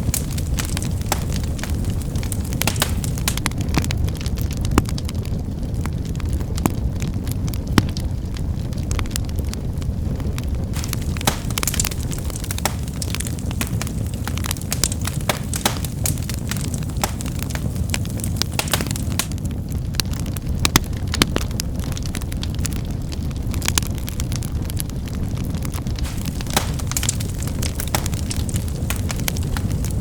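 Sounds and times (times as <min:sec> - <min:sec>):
sharp pops and snaps: 0:00.0 - 0:03.9, 0:10.7 - 0:21.4, 0:26.0 - 0:30.0
wood fire crackling: 0:00.0 - 0:30.0.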